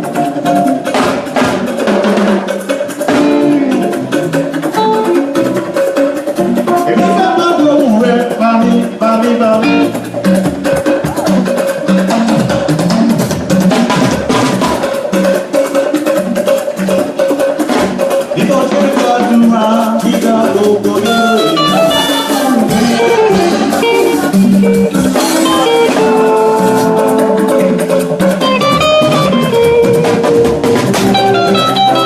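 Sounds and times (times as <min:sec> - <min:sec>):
drums and percussion: 0:00.0 - 0:32.0
plucked guitar line: 0:00.0 - 0:32.0.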